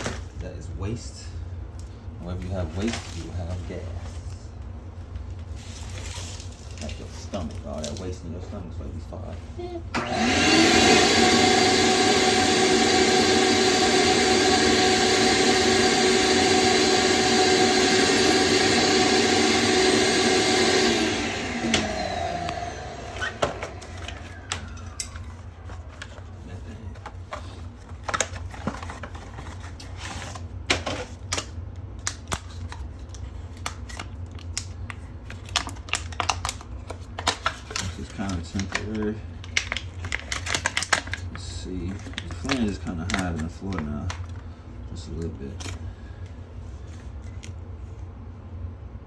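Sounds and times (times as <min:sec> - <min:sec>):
electric motor whining: 0:10.0 - 0:25.3.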